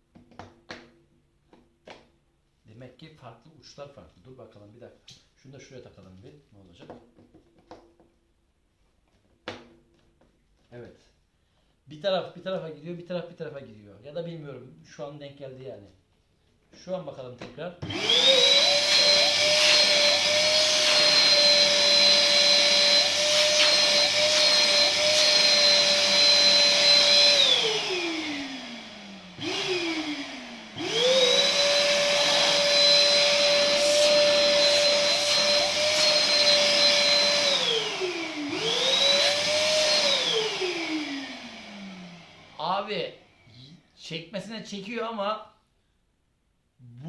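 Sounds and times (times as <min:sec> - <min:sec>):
vacuum cleaner whining: 0:17.8 - 0:43.8.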